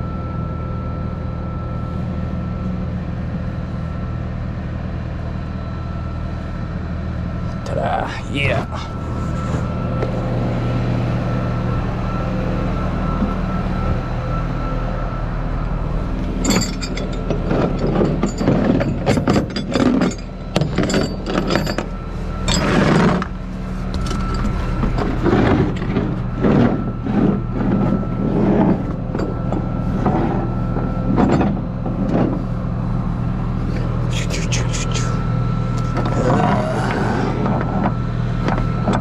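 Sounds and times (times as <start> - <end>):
truck engine running: 0.0 - 39.0
metallic clinks and clanks: 16.2 - 23.3.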